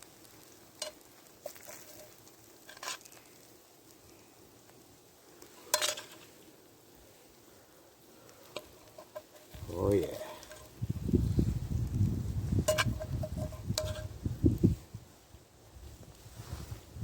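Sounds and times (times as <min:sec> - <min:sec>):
faint sizzle of frying meat: 0:00.0 - 0:17.0
utensil scraping a skillet: 0:00.7 - 0:03.4, 0:05.4 - 0:06.4, 0:08.4 - 0:11.5, 0:12.5 - 0:14.2.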